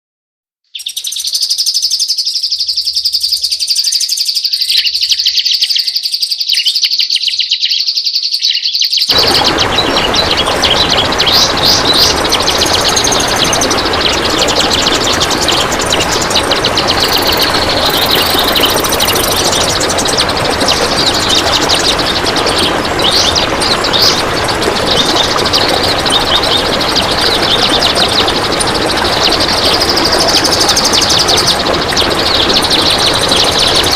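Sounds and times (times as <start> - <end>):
songbird chattering song: 0.7 - 33.9
loud steady hiss: 9.1 - 33.9.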